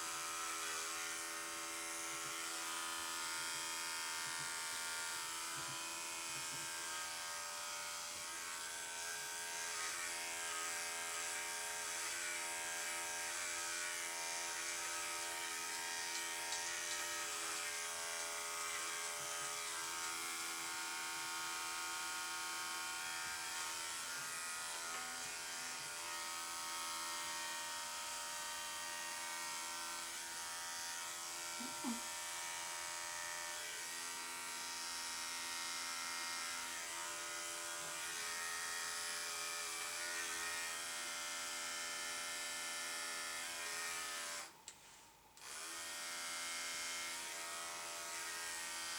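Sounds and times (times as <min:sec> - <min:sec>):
electric clippers buzzing: 0:00.0 - 0:44.6, 0:45.4 - 0:48.9.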